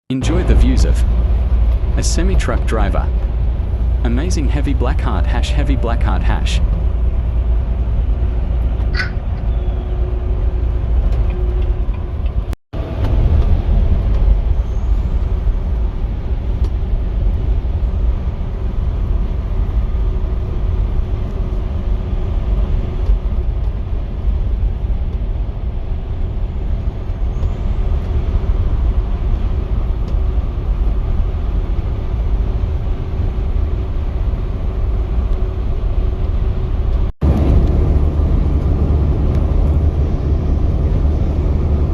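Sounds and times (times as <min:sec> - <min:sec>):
truck engine and road rumble: 0:00.1 - 0:41.9
faint hum: 0:00.2 - 0:08.3.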